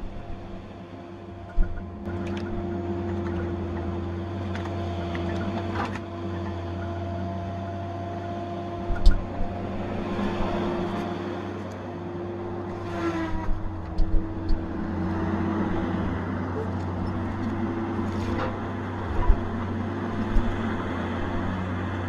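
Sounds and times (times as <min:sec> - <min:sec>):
diesel engine under load: 0:00.0 - 0:22.0.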